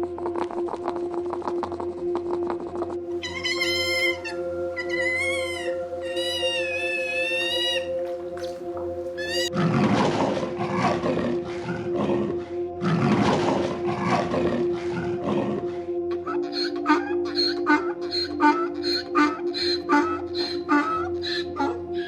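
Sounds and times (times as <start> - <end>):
background music: 0.0 - 22.0
large animal roaring: 9.4 - 17.3.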